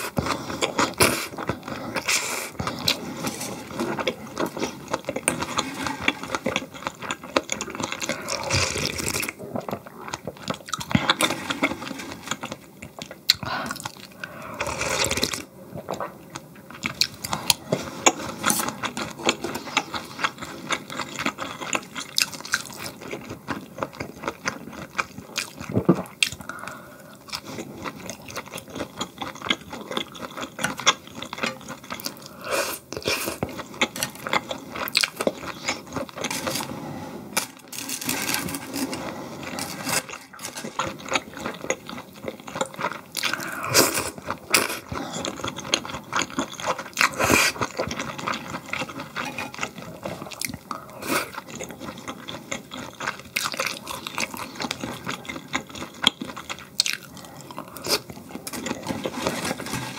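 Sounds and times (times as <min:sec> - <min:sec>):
chewing and biting food: 0:00.0 - 0:36.6, 0:39.4 - 0:59.9
clicks and scrapes: 0:58.5 - 0:59.9.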